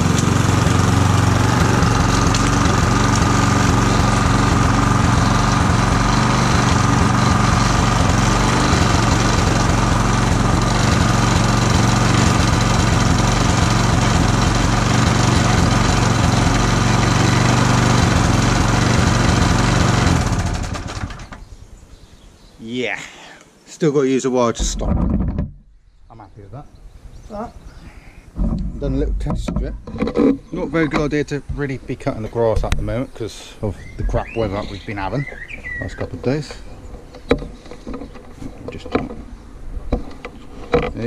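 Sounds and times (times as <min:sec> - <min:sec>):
lawn mower engine running: 0:00.0 - 0:21.5, 0:34.2 - 0:41.0.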